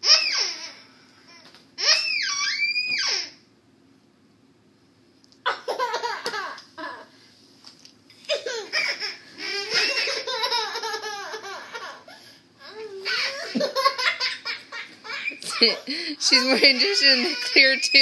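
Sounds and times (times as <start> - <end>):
young children laughing: 5.4 - 7.2, 8.2 - 18.0.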